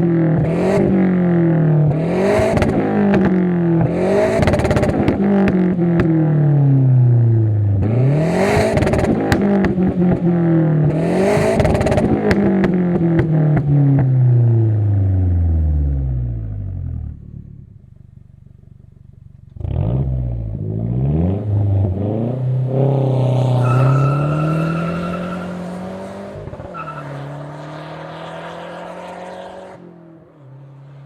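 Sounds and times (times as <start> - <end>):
car engine revving: 0.0 - 17.8, 19.4 - 31.0.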